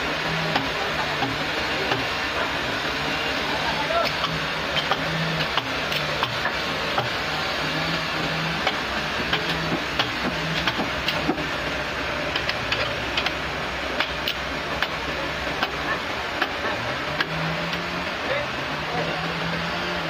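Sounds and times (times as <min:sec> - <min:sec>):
portable sawmill running: 0:00.0 - 0:20.0
sharp clicks and ticks: 0:12.3 - 0:13.4, 0:14.0 - 0:15.0.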